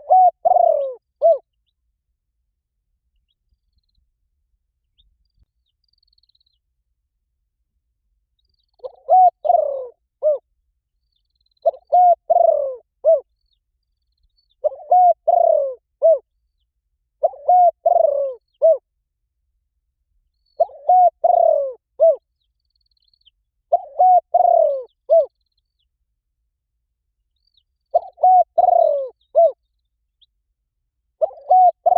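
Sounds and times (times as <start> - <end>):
dove cooing: 0.0 - 1.5, 8.8 - 10.4, 11.6 - 13.3, 14.6 - 16.2, 17.2 - 18.8, 20.6 - 22.2, 23.7 - 25.4, 27.9 - 29.6, 31.2 - 31.9.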